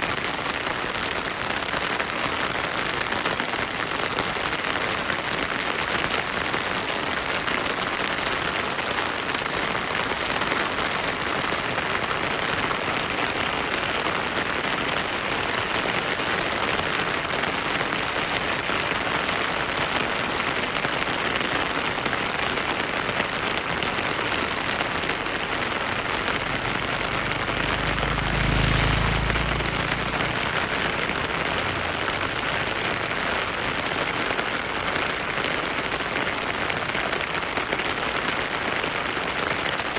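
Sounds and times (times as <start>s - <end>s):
heavy rain pouring: 0.0s - 39.9s
stream flowing: 21.9s - 37.4s.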